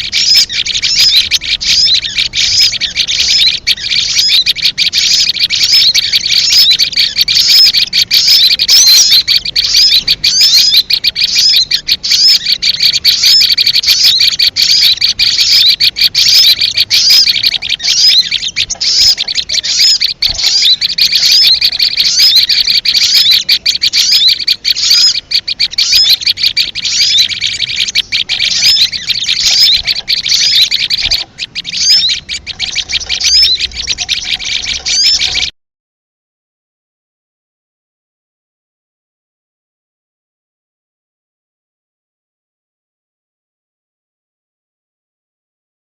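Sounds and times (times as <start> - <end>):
high-pitched bird lure chirping: 0.0 - 35.5.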